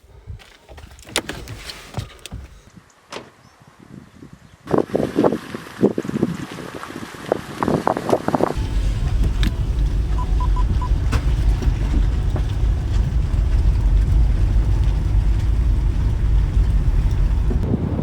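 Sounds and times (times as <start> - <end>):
car engine rumbling: 0.0 - 2.7, 8.5 - 18.0
quick high beeps: 10.2 - 10.9.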